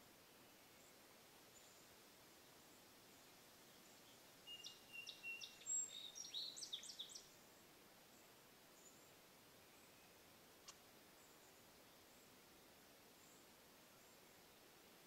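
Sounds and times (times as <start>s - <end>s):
songbird chirping and trilling: 3.2s - 14.8s.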